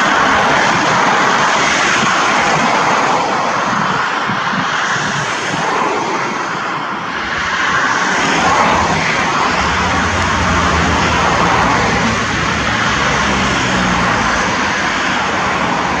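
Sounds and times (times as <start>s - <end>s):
jet engines running: 5.7s - 16.0s.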